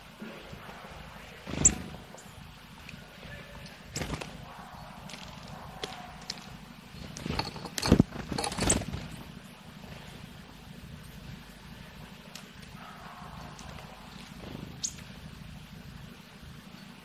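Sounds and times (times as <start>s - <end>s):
bird knocking and rustling: 5.0s - 9.2s.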